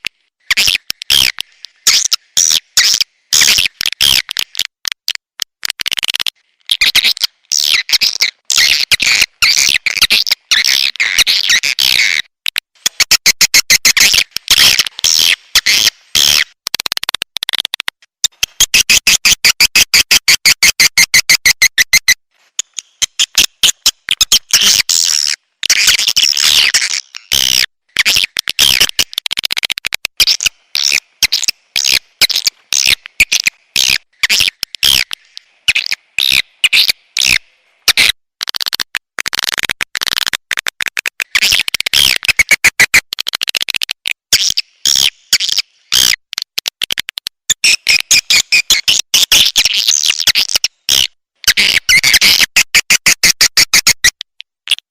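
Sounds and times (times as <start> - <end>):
rapid sharp bird clicks: 12.5 - 19.5, 28.0 - 36.4, 37.2 - 44.2, 46.0 - 48.9.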